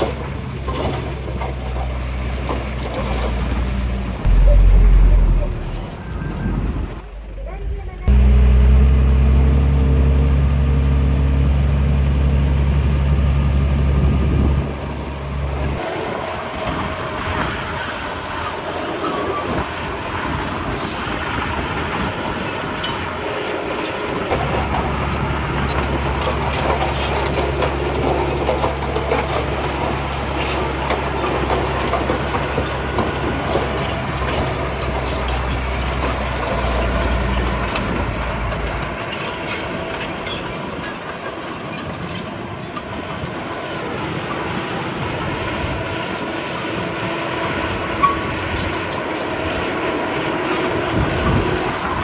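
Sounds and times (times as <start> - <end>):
diesel machinery engine running: 0.0 - 52.0
low engine drone: 3.4 - 16.5
metal clanking and rattling: 22.7 - 43.5.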